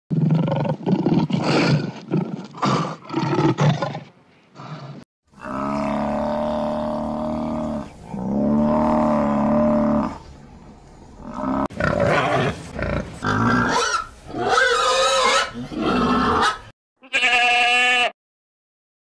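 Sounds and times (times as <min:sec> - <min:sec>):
lion roaring: 0:00.2 - 0:10.2, 0:11.2 - 0:16.6
cow mooing: 0:05.4 - 0:10.2.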